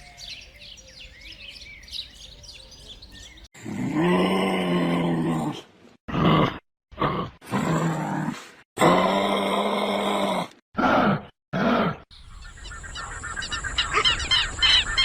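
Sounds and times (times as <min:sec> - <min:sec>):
small birds chirping: 0:00.0 - 0:03.5, 0:12.1 - 0:15.0.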